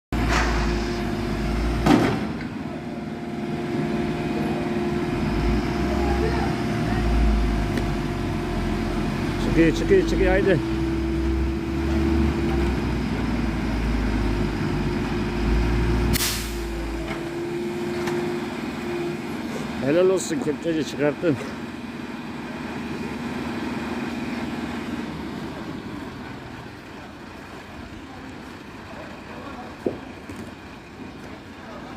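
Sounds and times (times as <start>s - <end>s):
engine running: 0.1s - 31.9s.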